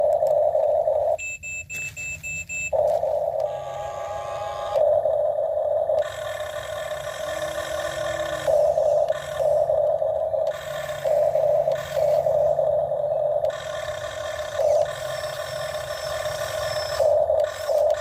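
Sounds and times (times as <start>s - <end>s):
short high beeps: 1.2s - 2.8s
electric motors whining: 2.7s - 18.0s.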